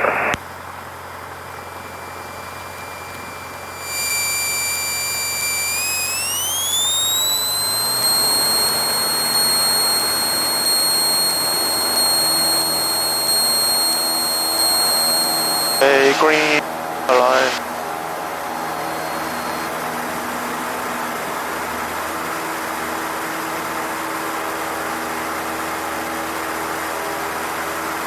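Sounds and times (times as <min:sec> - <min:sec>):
aircraft cockpit noise: 0:01.2 - 0:17.6
high-pitched whistle: 0:02.1 - 0:17.5.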